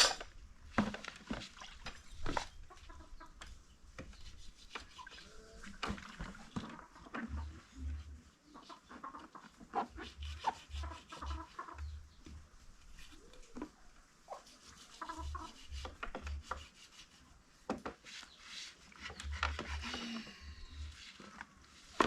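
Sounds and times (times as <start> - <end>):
rubbing and scraping: 3.8 - 12.0, 14.3 - 22.0.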